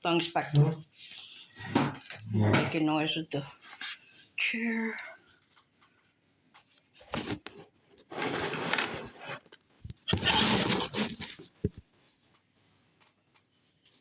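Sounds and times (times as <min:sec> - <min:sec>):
furniture scraping and rustling: 0:01.6 - 0:02.8, 0:07.2 - 0:11.8.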